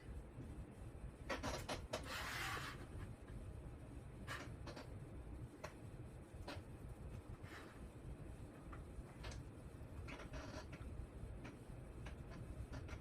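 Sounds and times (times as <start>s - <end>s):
rustling scrape: 2.0s - 3.0s.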